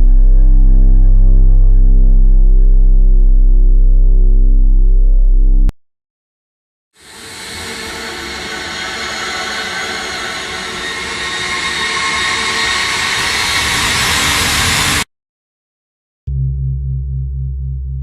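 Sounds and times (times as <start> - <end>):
suspense riser rushing swell: 7.0 - 15.1.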